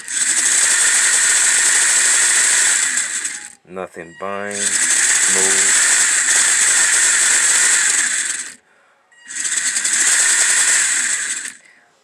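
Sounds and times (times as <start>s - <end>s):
toy truck electric motor whirring: 0.0s - 3.7s, 4.4s - 8.6s, 9.2s - 11.7s.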